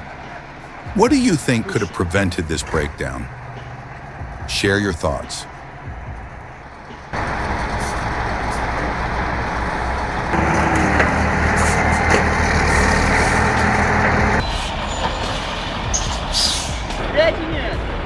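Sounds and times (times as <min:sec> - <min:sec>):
heavy truck engine running: 0:00.0 - 0:18.0.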